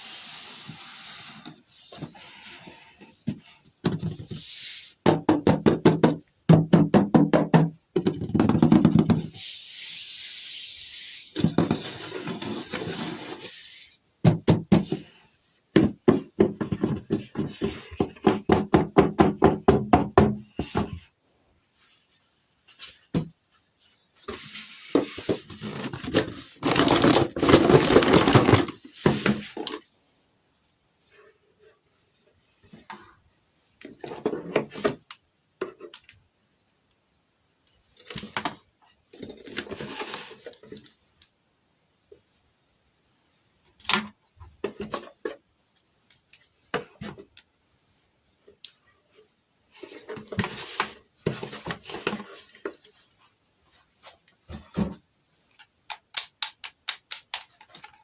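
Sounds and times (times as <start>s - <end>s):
packaging rustling and tearing: 25.6s - 28.8s.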